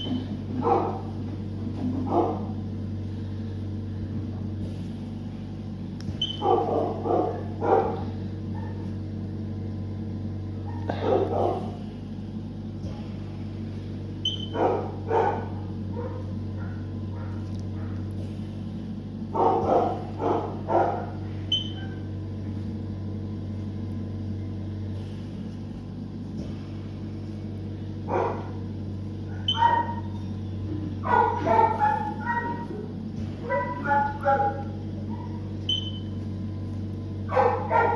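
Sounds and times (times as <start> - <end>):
steady low hum: 0.0 - 37.9
dog barking: 0.6 - 1.2, 2.0 - 2.6, 6.3 - 8.9, 10.6 - 11.8, 14.5 - 18.0, 19.4 - 21.2, 28.1 - 28.6, 29.3 - 30.2, 31.0 - 35.4, 37.3 - 37.9.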